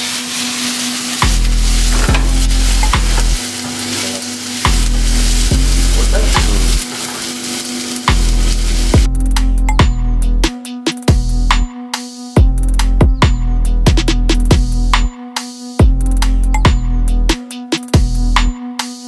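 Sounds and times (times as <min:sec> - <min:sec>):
vegetables sizzling in a pan: 0:00.0 - 0:09.1
music with heavy bass: 0:01.0 - 0:19.0.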